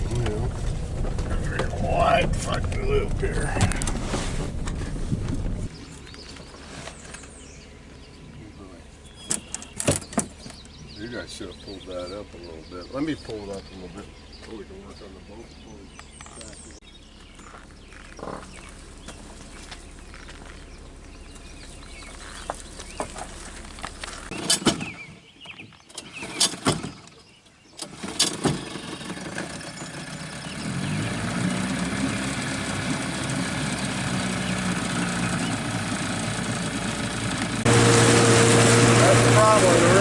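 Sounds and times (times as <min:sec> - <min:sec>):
boat motor idling: 0:16.9 - 0:24.3, 0:28.6 - 0:40.0.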